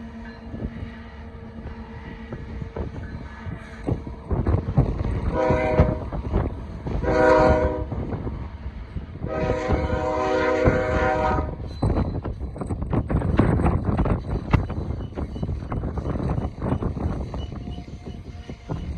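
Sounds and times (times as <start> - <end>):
rumble of a moving train: 0.0 - 18.9
locomotive air horn blasts: 5.2 - 8.1, 9.2 - 11.6.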